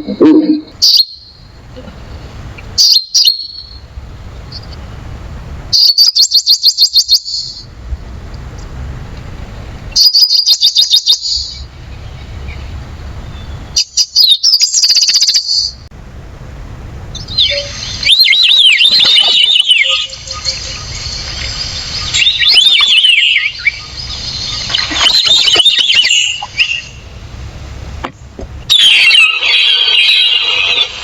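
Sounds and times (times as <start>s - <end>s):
songbird chirping: 0.0s - 4.9s, 17.1s - 27.1s
low background rumble: 3.4s - 5.8s, 7.4s - 10.0s, 15.7s - 18.2s.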